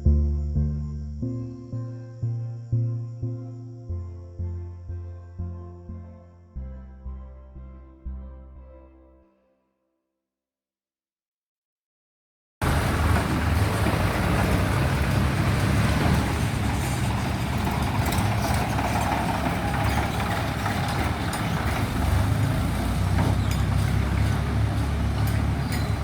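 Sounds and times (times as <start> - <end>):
vehicle engine rumbling: 12.6 - 26.0.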